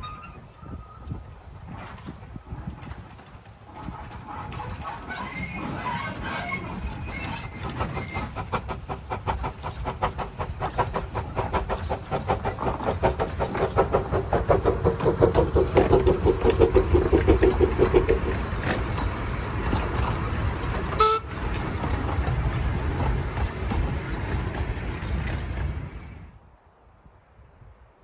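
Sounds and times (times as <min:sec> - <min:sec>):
train rumble: 0:00.0 - 0:26.5
steam locomotive exhaust beat: 0:06.6 - 0:26.0
steam whistle: 0:21.0 - 0:21.4.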